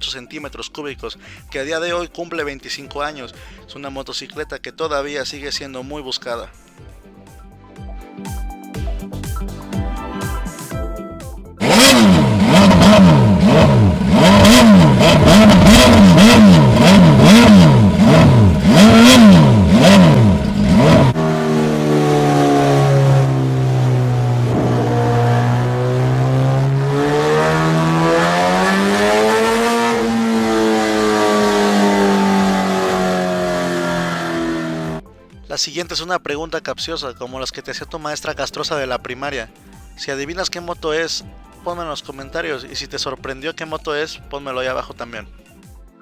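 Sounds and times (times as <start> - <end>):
motorcycle engine revving: 11.6 - 35.0.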